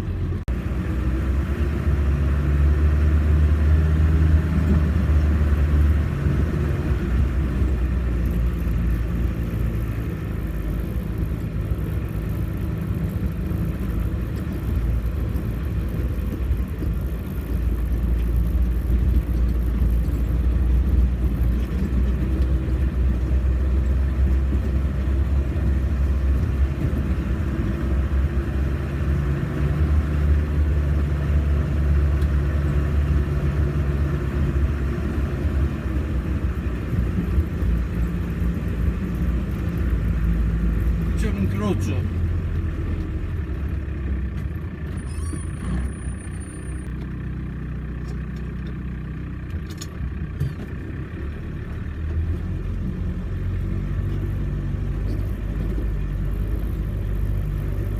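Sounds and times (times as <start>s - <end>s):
off-road vehicle engine rumbling: 0.0s - 57.9s.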